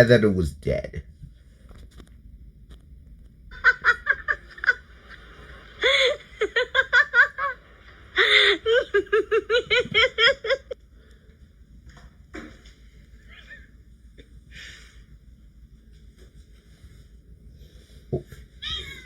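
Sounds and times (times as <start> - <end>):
high-pitched shrieking laughter: 3.5 - 7.6, 8.2 - 10.8, 13.2 - 13.7.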